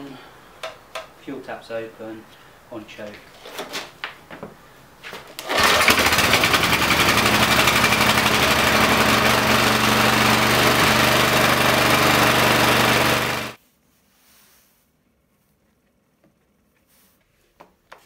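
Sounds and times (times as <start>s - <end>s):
generator engine running: 5.4s - 13.6s.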